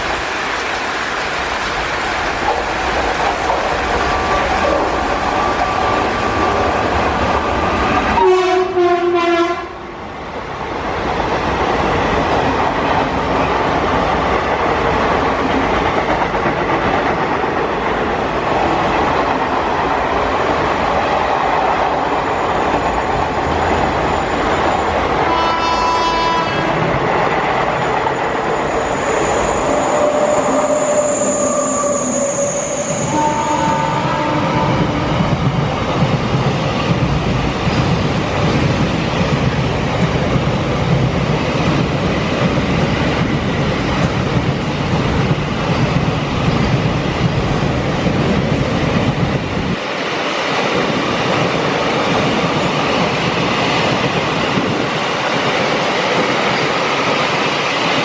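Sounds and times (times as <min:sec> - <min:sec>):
train rail noise: 0:00.0 - 0:58.0
locomotive horn: 0:08.1 - 0:09.8, 0:25.3 - 0:26.8, 0:30.0 - 0:35.2.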